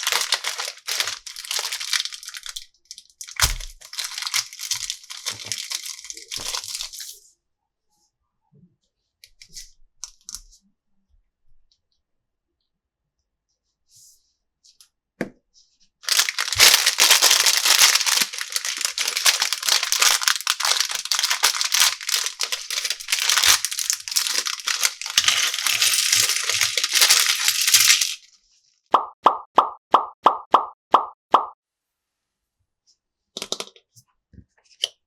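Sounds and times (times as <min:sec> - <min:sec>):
plastic packaging crinkling: 0:00.0 - 0:07.2, 0:16.0 - 0:28.4.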